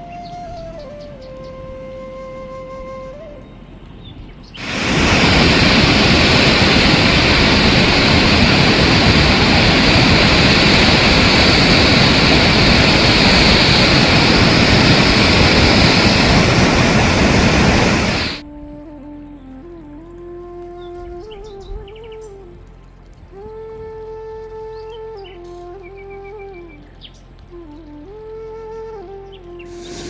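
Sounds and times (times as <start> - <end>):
heavy rain pouring: 4.6 - 18.4.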